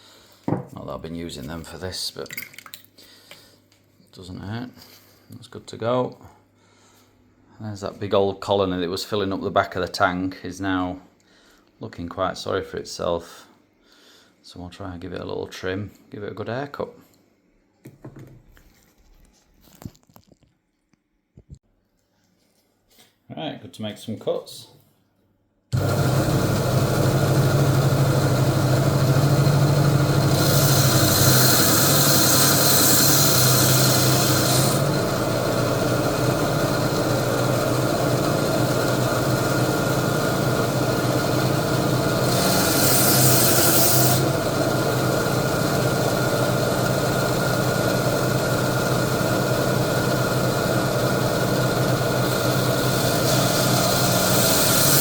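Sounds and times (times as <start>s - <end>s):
blade grinding coral: 25.8s - 55.0s
power cutting tool humming: 25.8s - 55.0s.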